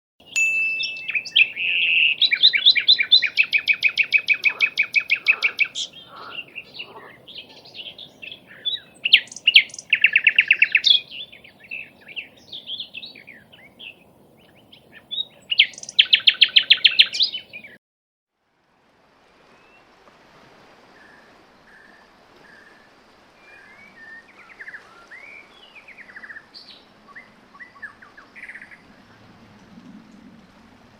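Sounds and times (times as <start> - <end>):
songbirds singing trills: 0.2 - 17.8, 23.4 - 29.0
bird chirps and short calls: 0.3 - 14.0, 14.9 - 17.8.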